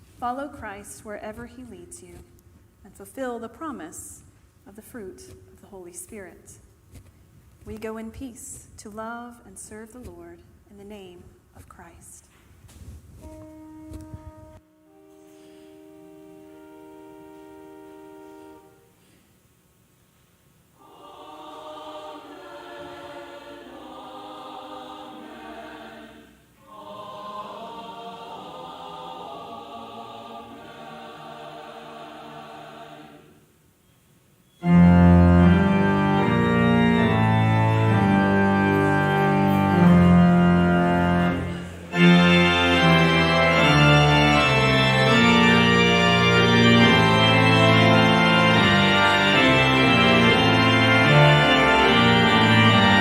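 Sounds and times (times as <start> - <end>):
church organ playing: 13.3 - 19.0, 34.6 - 53.0.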